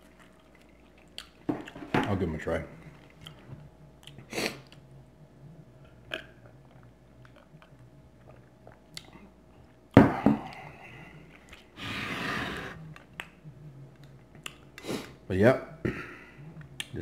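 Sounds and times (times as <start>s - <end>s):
person chewing food: 0.0s - 1.8s, 2.8s - 4.9s, 5.8s - 11.8s, 14.0s - 15.1s.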